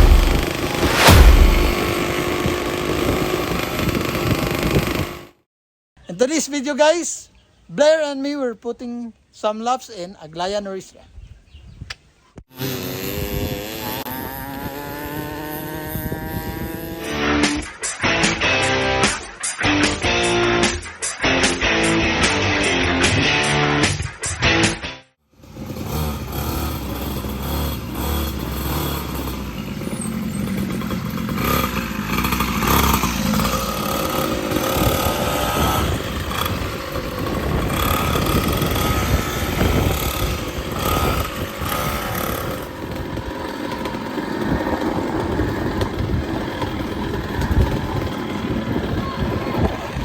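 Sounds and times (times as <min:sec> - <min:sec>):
dirt bike engine revving: 0:00.0 - 0:03.4, 0:12.6 - 0:17.4, 0:25.4 - 0:49.0.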